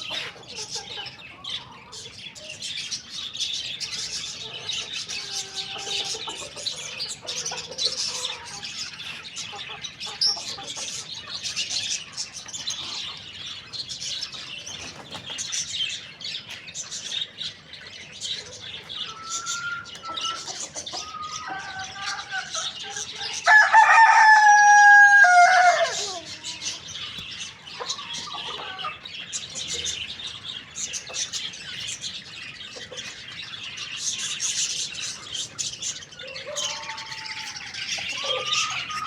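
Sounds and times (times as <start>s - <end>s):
faint chicken calls: 0.0s - 2.7s, 3.8s - 13.5s, 18.1s - 32.0s, 32.6s - 39.0s
small birds chirping: 0.0s - 39.0s
rooster crowing: 21.0s - 26.5s, 36.2s - 39.0s.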